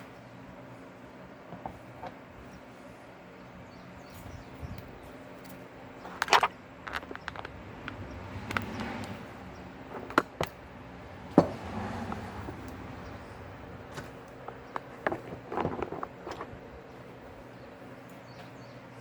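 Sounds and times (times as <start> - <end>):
handling and rustling: 4.1 - 10.6, 12.0 - 17.5
metal parts knocking: 6.1 - 8.8.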